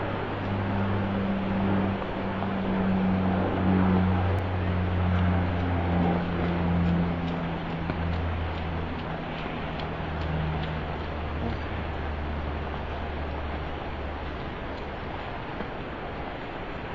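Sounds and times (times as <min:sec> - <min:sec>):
vehicle engine running: 0:00.0 - 0:15.9
steady rain: 0:00.0 - 0:16.9.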